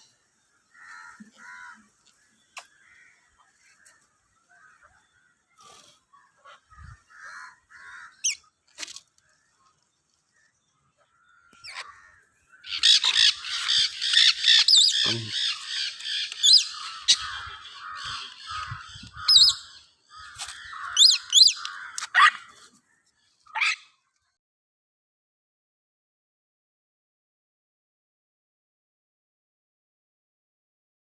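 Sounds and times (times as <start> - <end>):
parrots screeching and calling: 11.5 - 22.6, 23.5 - 23.9.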